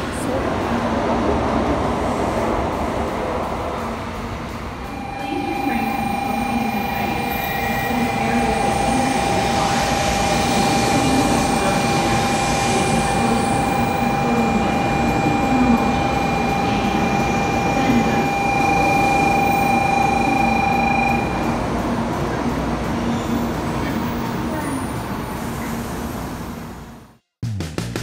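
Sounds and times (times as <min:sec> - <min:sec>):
train carriages rumbling past: 0:00.0 - 0:27.0
steady high tone: 0:04.8 - 0:25.0.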